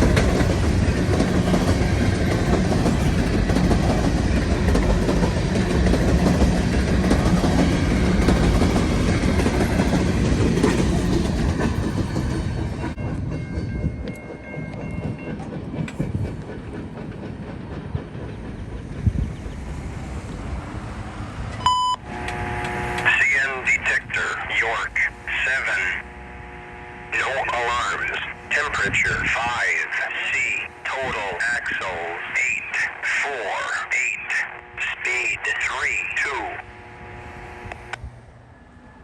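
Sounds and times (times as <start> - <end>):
train wheels clattering over rail joints: 0.0 - 20.5.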